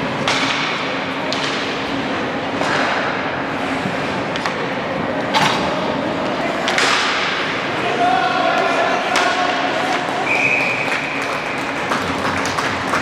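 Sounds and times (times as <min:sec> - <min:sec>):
stick and puck clacks: 0:00.2 - 0:01.9, 0:06.6 - 0:07.4, 0:09.1 - 0:13.0.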